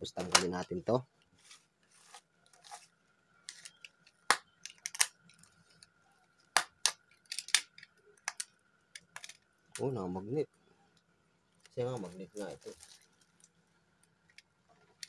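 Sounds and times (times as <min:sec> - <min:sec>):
plastic rustling: 0:11.6 - 0:13.7.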